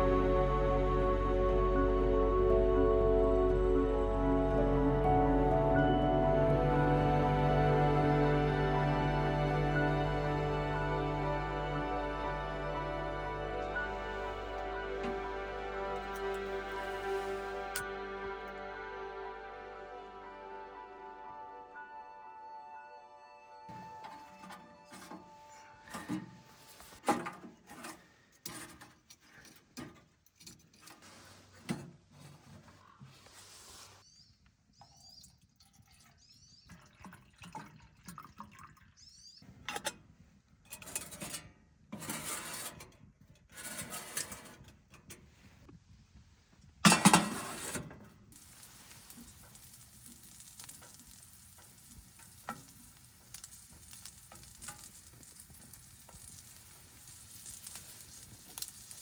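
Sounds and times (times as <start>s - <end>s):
pan and utensils clattering: 46.9s - 47.9s
food sizzling in a pan: 48.3s - 59.0s.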